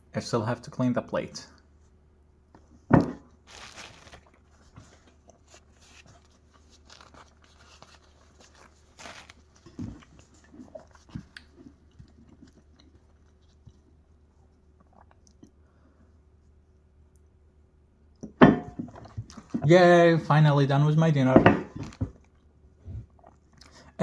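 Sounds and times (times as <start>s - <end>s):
person chewing food: 3.5s - 16.2s, 21.9s - 24.0s.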